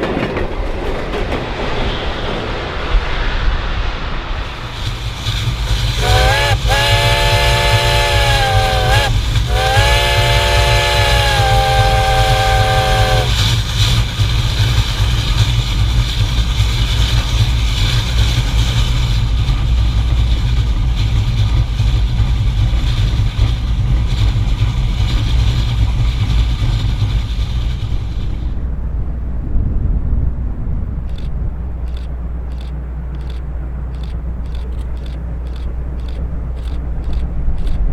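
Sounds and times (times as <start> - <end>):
train running noise: 0.0 - 37.9
steam locomotive chime whistle: 5.7 - 13.7.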